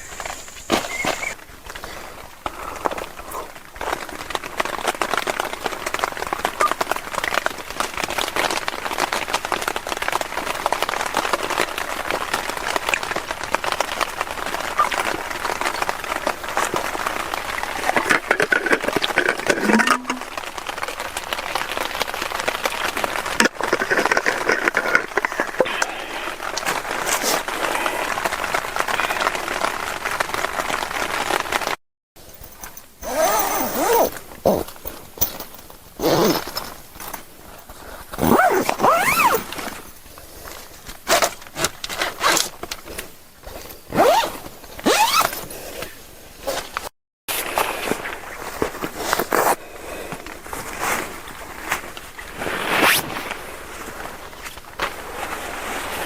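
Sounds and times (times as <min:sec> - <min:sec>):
heavy rain pattering: 0:01.3 - 0:31.8.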